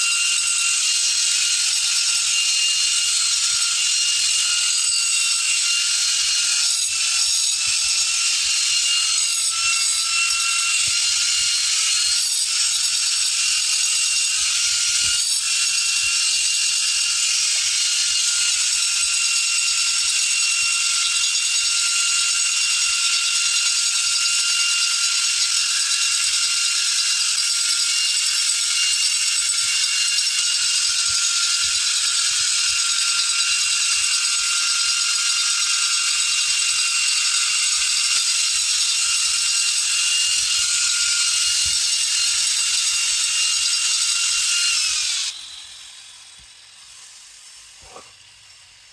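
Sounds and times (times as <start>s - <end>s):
electric power tool whining: 0.0s - 48.9s.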